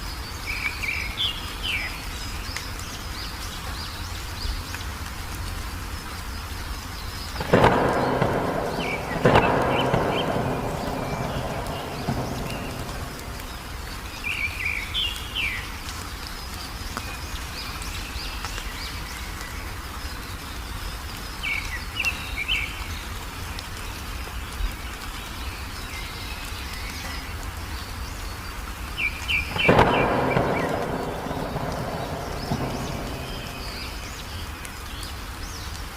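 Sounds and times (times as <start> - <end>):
songbirds chirping: 0.0 - 35.9
low background rumble: 7.4 - 14.4, 29.6 - 34.7.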